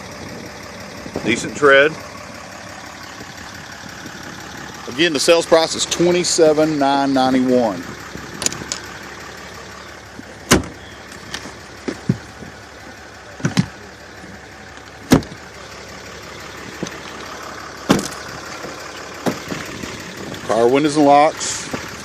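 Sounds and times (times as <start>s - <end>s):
diesel engine idling: 0.0s - 22.0s
sharp clicks and knocks: 8.4s - 8.9s, 13.4s - 13.8s.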